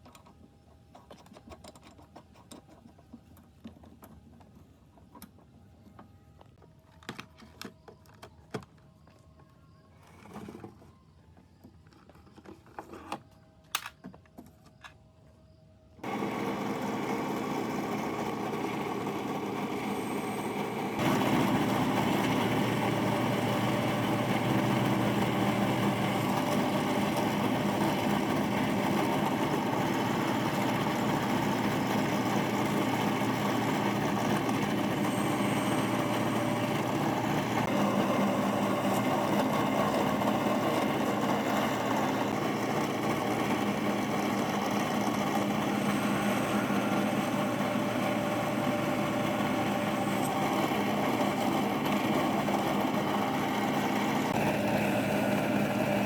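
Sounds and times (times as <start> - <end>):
drill press motor humming: 16.0 - 56.0.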